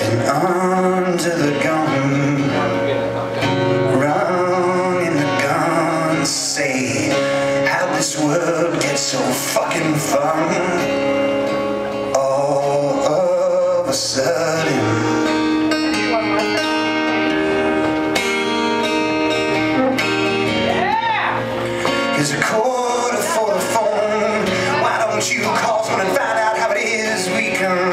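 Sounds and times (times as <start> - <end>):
man singing: 0.0 - 17.7, 20.8 - 27.9
guitar playing: 0.0 - 27.9.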